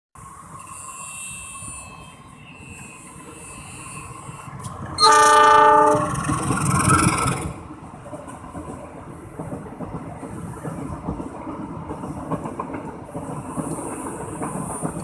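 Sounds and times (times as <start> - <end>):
train rumbling: 0.2 - 15.0
train horn blast: 5.0 - 6.2.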